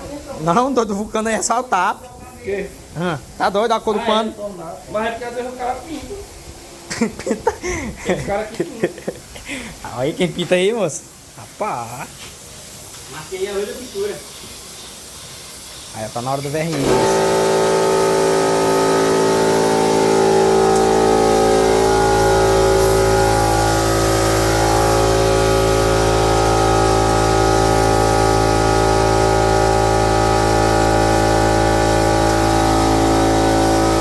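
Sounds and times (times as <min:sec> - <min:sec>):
faint high hiss: 0:00.0 - 0:16.9
spray gun motor humming: 0:12.1 - 0:34.0
deep low hum: 0:17.4 - 0:34.0.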